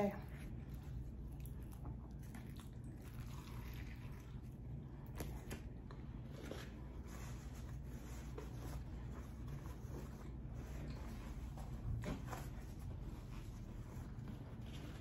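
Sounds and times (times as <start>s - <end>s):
faint low hum: 0.0s - 15.0s
wet chewing sounds: 0.2s - 7.1s.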